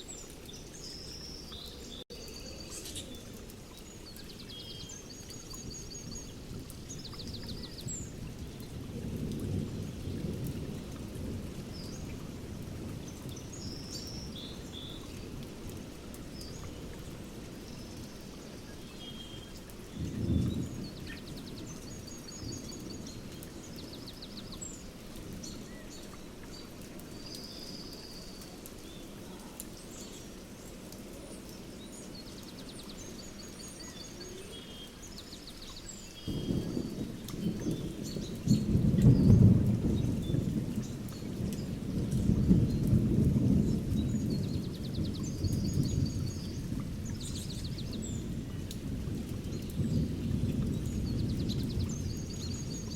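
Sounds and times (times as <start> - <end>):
steady rain: 0.0 - 52.9
thunder rumbling: 6.2 - 13.8, 19.9 - 23.8, 36.3 - 52.9
birds chirping: 17.6 - 48.5.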